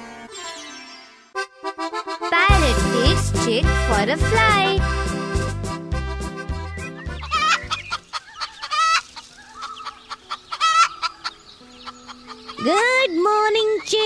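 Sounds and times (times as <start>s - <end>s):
children's music with low beat: 1.4s - 8.0s
hen clucking: 6.8s - 13.0s.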